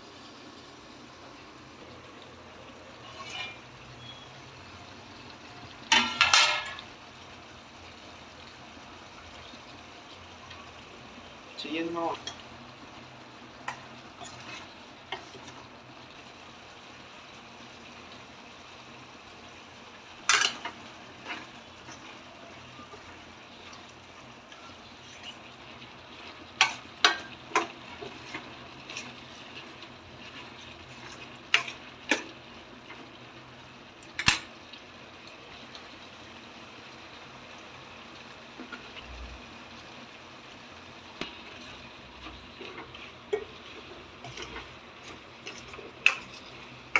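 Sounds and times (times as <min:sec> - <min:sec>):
curry sizzling in a pan: 0:00.0 - 0:46.9
spoon scraping and knocking pan: 0:03.0 - 0:03.6, 0:05.9 - 0:06.9, 0:13.7 - 0:15.6, 0:20.2 - 0:23.9, 0:24.5 - 0:33.0, 0:41.2 - 0:46.9.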